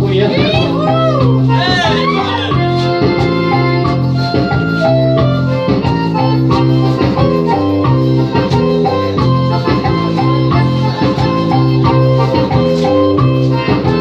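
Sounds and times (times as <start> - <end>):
electronic keyboard organ voice: 0.0 - 3.8
bass line: 0.0 - 14.0.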